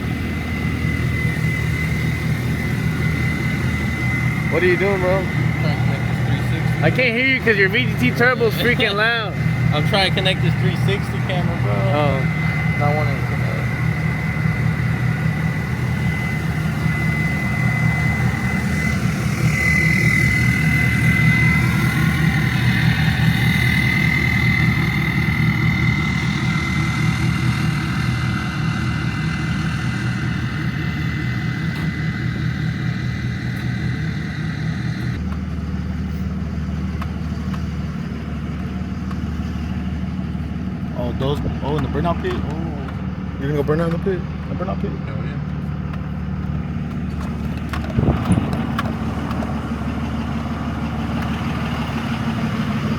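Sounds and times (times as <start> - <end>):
diesel truck engine idling: 0.0 - 52.9
turbo whistle: 12.1 - 26.8.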